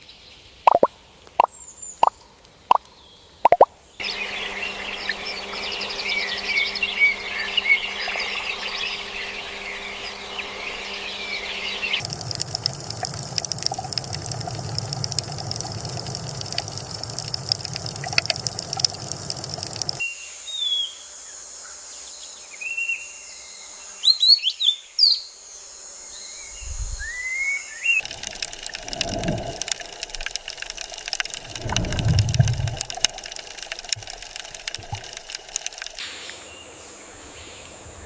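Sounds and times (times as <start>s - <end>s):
steady hiss with small clicks: 4.0s - 20.0s, 28.0s - 36.5s
rushing hiss: 28.0s - 36.4s.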